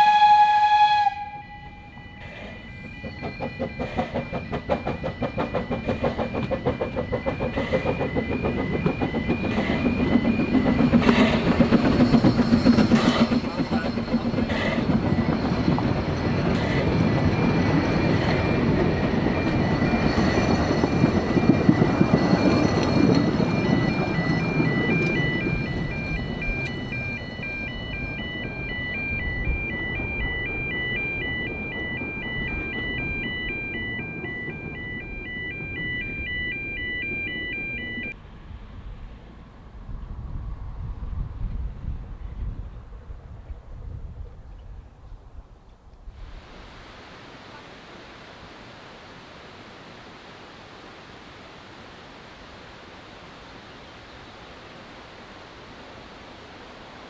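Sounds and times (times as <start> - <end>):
two-tone crossing alarm warble: 0.0 - 38.2
steam train rumbling past: 0.0 - 44.2.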